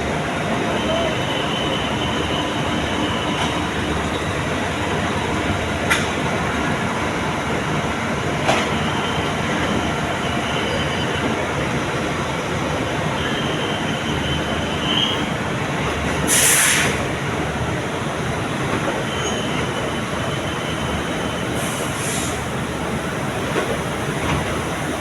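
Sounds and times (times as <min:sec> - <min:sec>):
train rumble: 0:00.0 - 0:25.0
high wheel squeal: 0:08.8 - 0:11.4, 0:13.0 - 0:15.4, 0:18.9 - 0:22.6.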